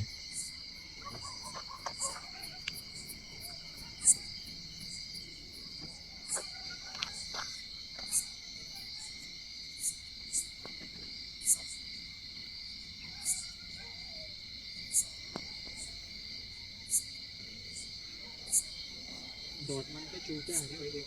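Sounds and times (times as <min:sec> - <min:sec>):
insects trilling: 0:00.0 - 0:21.0
faint clicks: 0:01.1 - 0:07.5.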